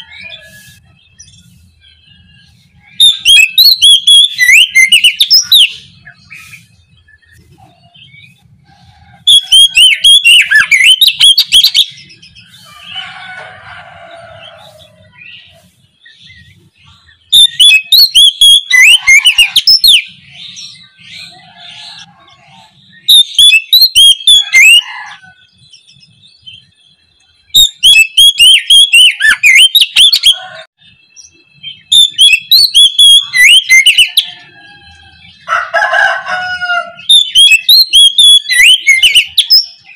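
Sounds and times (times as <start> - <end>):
faint bird chirping: 0.0 - 35.6
bird singing whistled phrases: 1.9 - 7.4, 9.3 - 12.4, 17.2 - 21.3, 23.0 - 24.8, 27.5 - 30.4, 31.2 - 34.3, 37.0 - 39.9.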